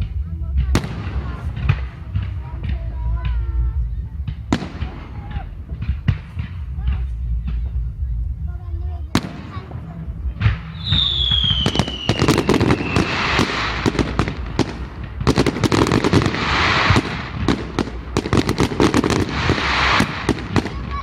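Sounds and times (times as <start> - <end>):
fireworks bangs and crackling: 0.0 - 21.0
firework whistle falling in pitch: 10.8 - 13.2.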